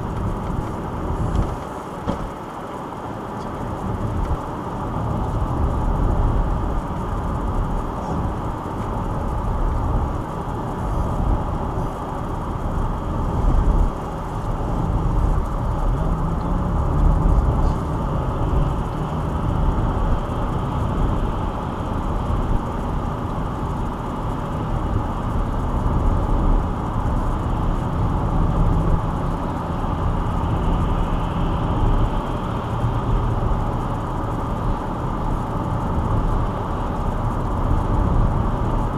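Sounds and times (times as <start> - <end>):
car road and engine noise: 0.0 - 38.9.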